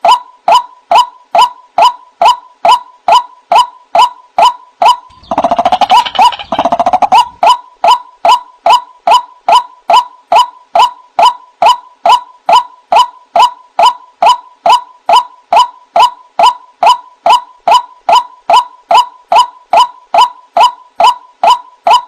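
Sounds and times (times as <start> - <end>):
waterhen calls: 4.8 - 8.8.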